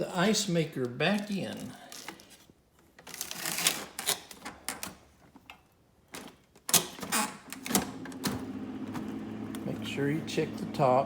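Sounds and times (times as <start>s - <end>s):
plastic ice bin scraping and clicking: 6.2s - 10.0s
refrigerator hum: 7.0s - 11.0s.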